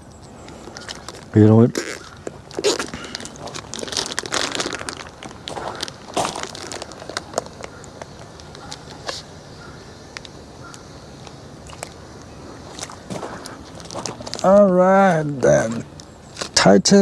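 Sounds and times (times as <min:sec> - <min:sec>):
plastic bag crinkling: 0:00.5 - 0:09.3, 0:11.7 - 0:14.7.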